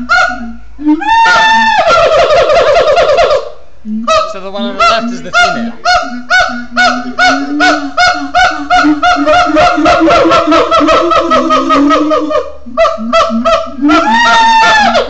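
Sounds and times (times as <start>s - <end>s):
ringing pitched barks: 0.0s - 0.6s, 4.0s - 11.6s
low steady hooting tone: 3.2s - 15.0s.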